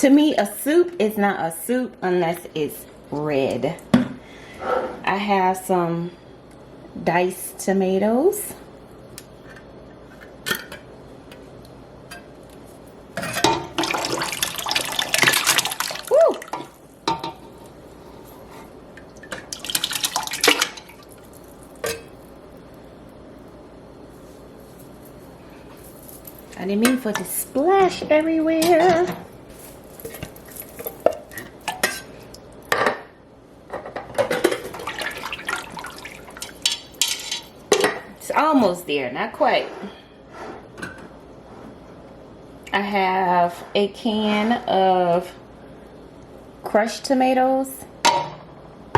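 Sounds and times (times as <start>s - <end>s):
tomatoes splashing into broth: 19.2s - 22.6s.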